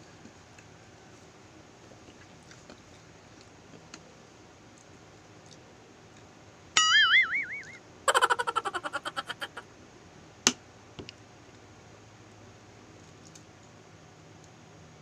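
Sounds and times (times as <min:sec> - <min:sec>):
faint chewing: 0:01.8 - 0:04.0
loud wavering tone: 0:06.8 - 0:07.8.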